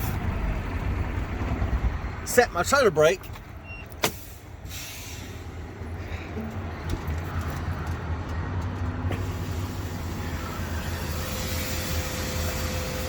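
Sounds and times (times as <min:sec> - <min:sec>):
steady low rumble: 0:00.0 - 0:02.6
air hissing from leaking line: 0:09.2 - 0:13.0.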